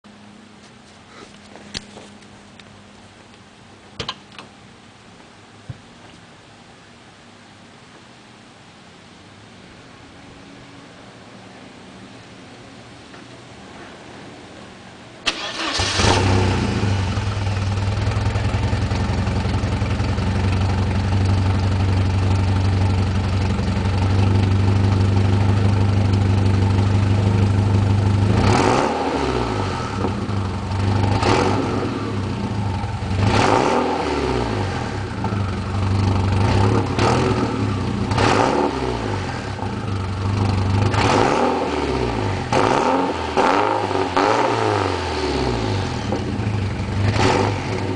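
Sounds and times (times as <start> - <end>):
car engine starting and revving: 15.2 - 20.7, 23.9 - 47.9.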